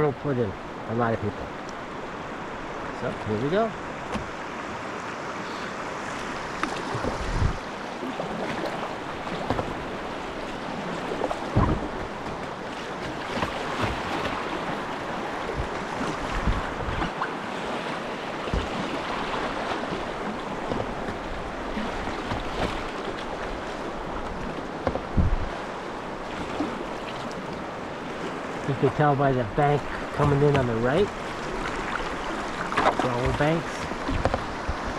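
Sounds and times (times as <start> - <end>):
rushing whitewater: 0.0 - 34.9
low thumps: 11.2 - 12.4, 15.3 - 17.1.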